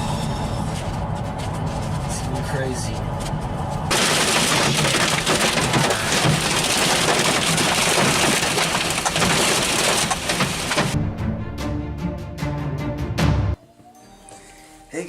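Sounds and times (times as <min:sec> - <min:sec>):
hail pelting truck roof: 0:03.9 - 0:11.0.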